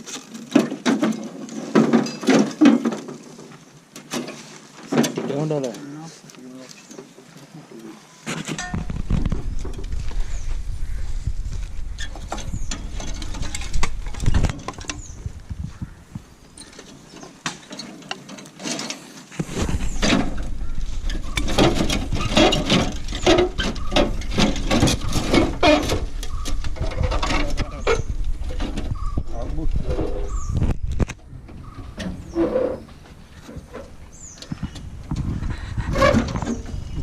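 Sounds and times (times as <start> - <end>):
low handling rumble: 8.8 - 16.6.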